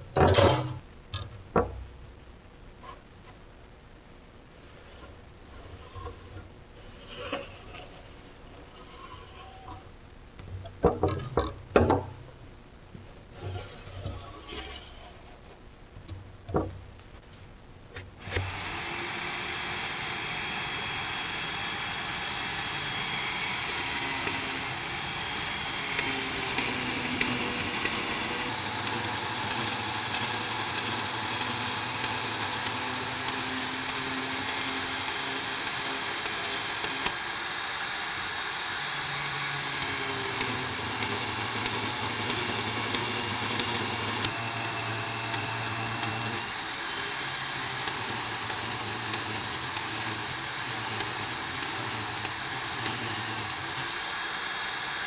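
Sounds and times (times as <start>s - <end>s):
machinery running with hiss: 18.2s - 55.0s.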